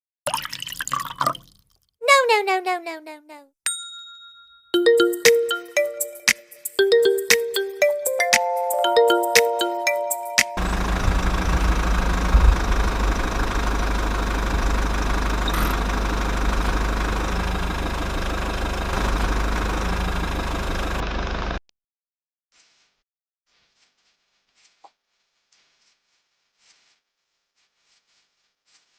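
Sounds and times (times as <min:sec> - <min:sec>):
small engine rumbling: 0:10.6 - 0:21.6.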